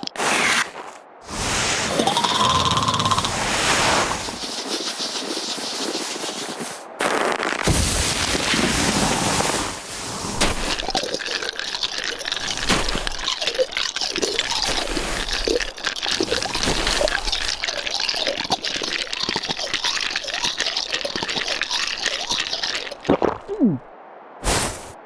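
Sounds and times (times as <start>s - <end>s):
water gurgling and bubbling: 1.3s - 4.4s, 10.6s - 23.9s.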